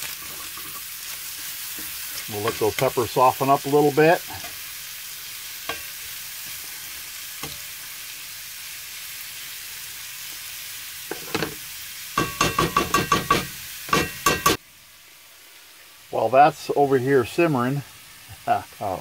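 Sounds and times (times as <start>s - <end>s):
spatula scraping a pan: 0.0s - 3.0s
food sizzling in a skillet: 0.0s - 19.0s.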